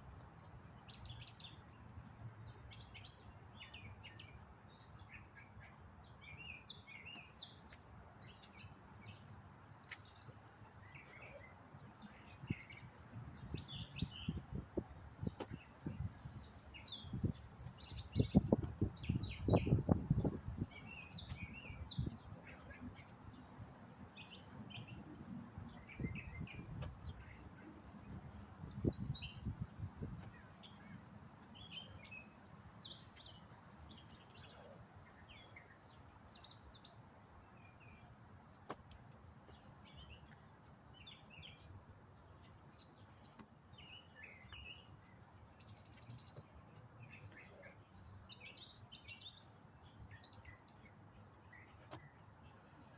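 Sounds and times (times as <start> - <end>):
small birds chirping: 0.0 - 52.9
wind rumble on microphone: 12.4 - 32.3.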